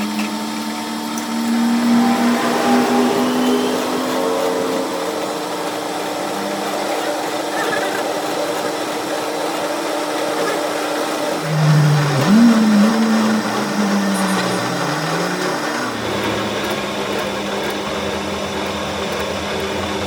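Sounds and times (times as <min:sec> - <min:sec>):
louder motor tone rising: 0:00.0 - 0:08.2, 0:11.4 - 0:17.8
power tool running: 0:00.0 - 0:18.1.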